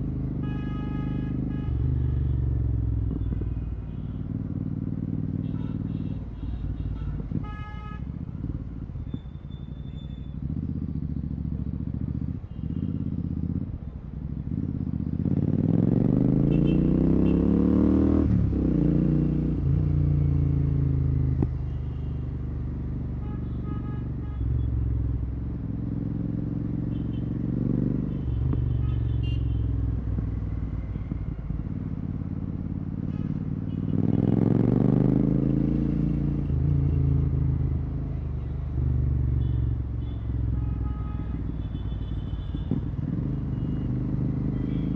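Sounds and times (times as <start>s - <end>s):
motorcycle engine revving: 10.4s - 13.8s, 14.5s - 21.5s, 25.4s - 38.2s, 42.5s - 44.9s.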